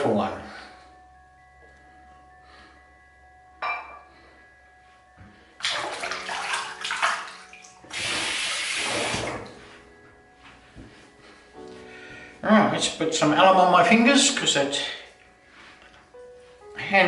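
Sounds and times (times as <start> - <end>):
water splashing: 5.6 - 9.5.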